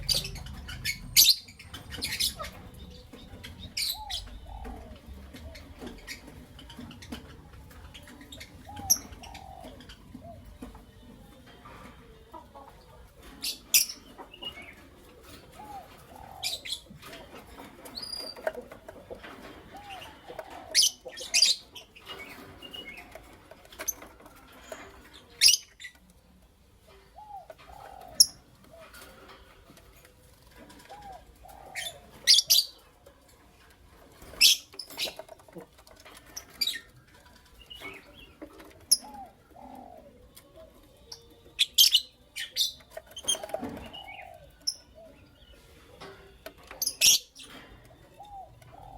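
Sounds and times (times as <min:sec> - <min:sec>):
birds shrill chirps: 0:00.0 - 0:11.4, 0:13.2 - 0:18.6, 0:40.8 - 0:45.7, 0:46.5 - 0:48.9.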